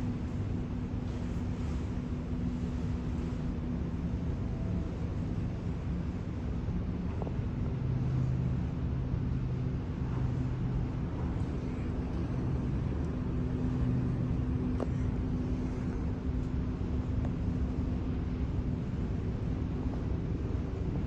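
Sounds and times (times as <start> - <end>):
low engine drone: 0.0 - 21.0
wind and water rumble: 0.0 - 21.0.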